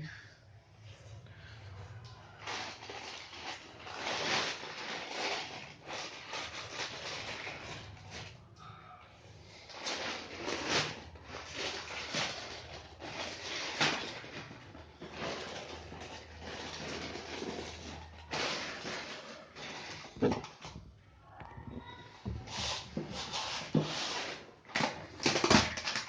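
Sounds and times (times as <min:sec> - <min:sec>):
packaging rustling and scraping: 0:02.2 - 0:08.5, 0:09.3 - 0:26.0.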